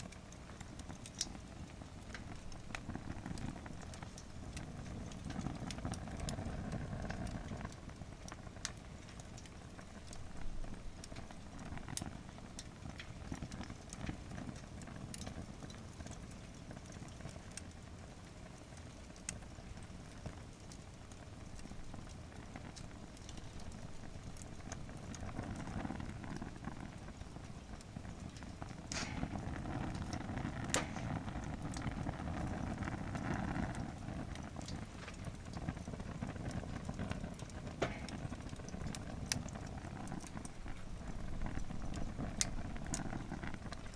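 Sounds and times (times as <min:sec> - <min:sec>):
campfire crackling and popping: 0:00.0 - 0:43.9.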